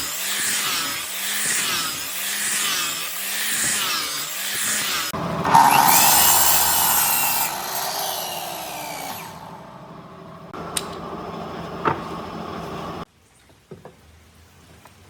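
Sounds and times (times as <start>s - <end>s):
power tool grinding wood: 0.2s - 10.4s.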